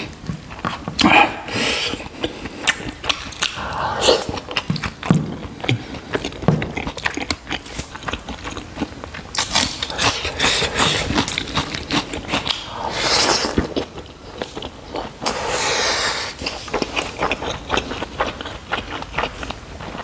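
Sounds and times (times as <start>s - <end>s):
wet chewing: 0.0s - 20.0s.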